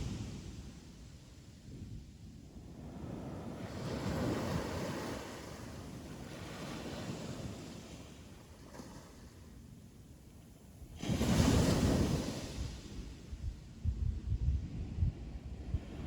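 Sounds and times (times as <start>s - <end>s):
wind on microphone: 0.0s - 9.1s, 10.8s - 16.0s
ocean waves breaking on beach: 0.0s - 9.9s, 10.5s - 13.8s.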